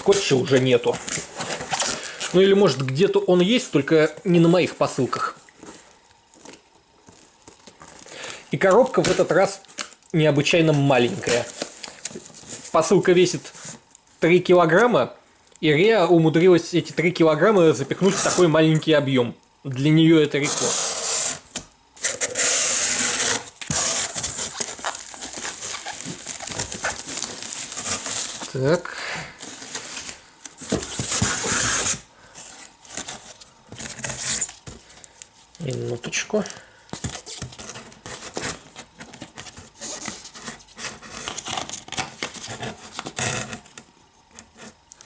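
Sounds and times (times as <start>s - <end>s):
packaging crinkling and tearing: 0.0s - 3.6s, 22.0s - 32.0s
packaging rustling: 0.0s - 14.1s, 20.4s - 43.8s
tape and cardboard ripping: 20.4s - 28.6s, 29.5s - 32.0s.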